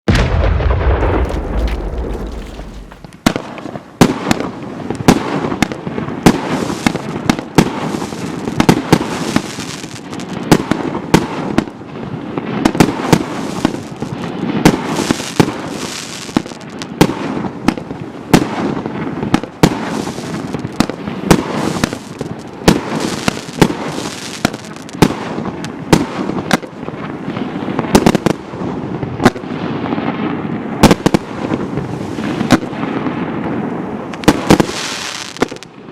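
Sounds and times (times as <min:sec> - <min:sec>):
firework crackling: 0:00.1 - 0:03.6, 0:34.0 - 0:35.9
firework barrage bangs: 0:00.1 - 0:09.5, 0:18.3 - 0:26.6, 0:34.2 - 0:35.7.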